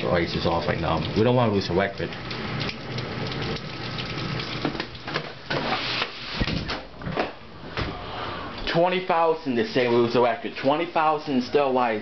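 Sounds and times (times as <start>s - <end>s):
heavy rain pouring: 0.0s - 5.1s.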